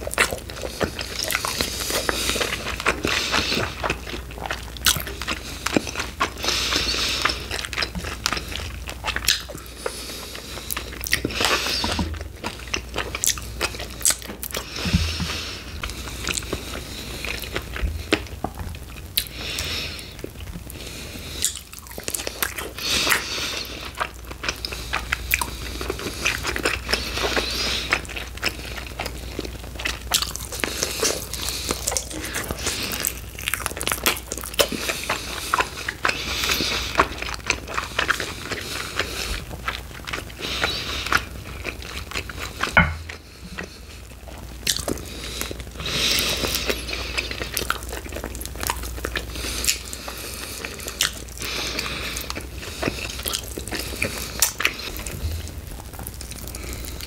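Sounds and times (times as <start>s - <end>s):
biting and chewing crunches: 0.0s - 57.0s
wet mouth clicks: 52.8s - 57.0s.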